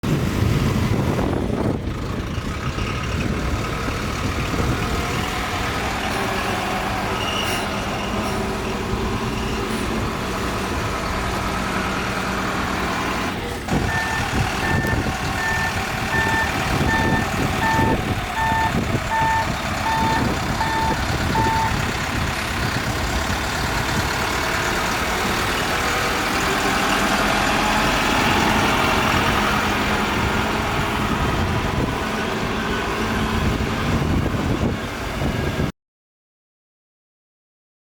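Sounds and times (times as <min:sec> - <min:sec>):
diesel engine running: 0:00.0 - 0:35.7
reversing alarm beeping: 0:13.7 - 0:21.8.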